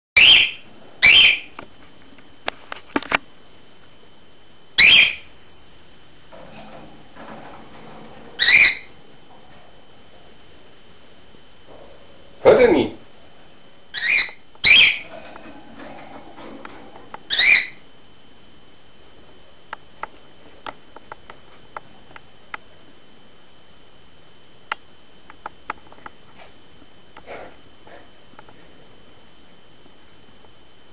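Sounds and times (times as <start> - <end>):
cockatiel screeching: 0.2 - 1.5, 4.8 - 5.3, 8.4 - 8.9, 13.9 - 15.1, 17.3 - 17.8.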